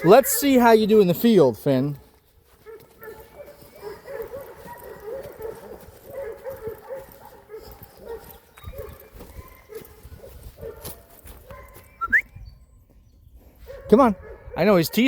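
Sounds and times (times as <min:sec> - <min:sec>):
dog whining: 0:12.0 - 0:12.2.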